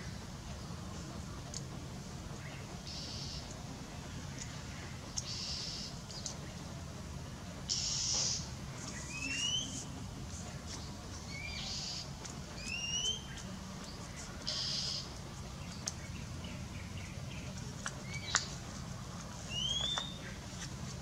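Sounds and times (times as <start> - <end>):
steady low hum: 0.0 - 21.0
rising whistled calls: 7.7 - 9.9, 11.3 - 13.4, 14.5 - 15.1, 19.5 - 20.4.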